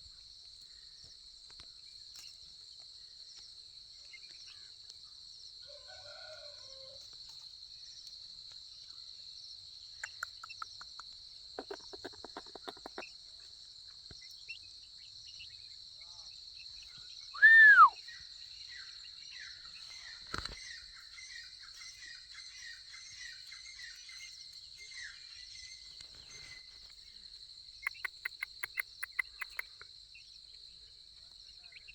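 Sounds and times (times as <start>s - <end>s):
bird calls: 11.6s - 13.1s, 16.8s - 26.9s, 27.8s - 29.8s.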